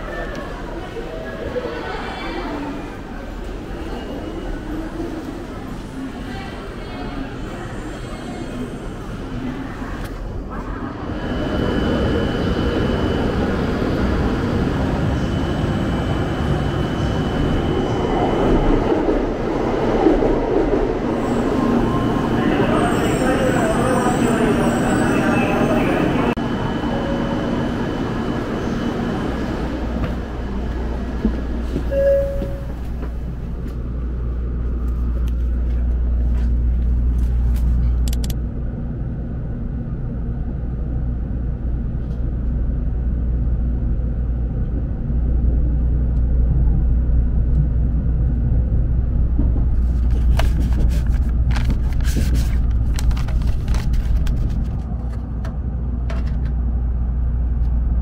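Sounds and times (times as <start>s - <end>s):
train rumbling: 0.0s - 58.0s
short pitched tone: 31.9s - 32.9s.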